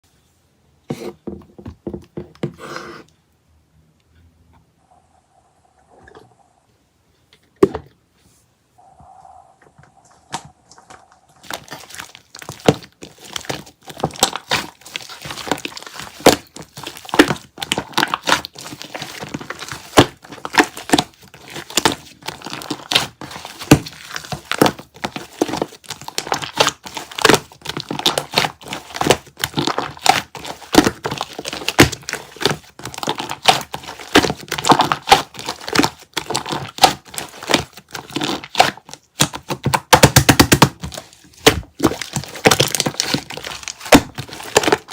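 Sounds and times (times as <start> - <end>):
brittle material crackling when scraped: 9.9 - 39.8, 40.8 - 44.9.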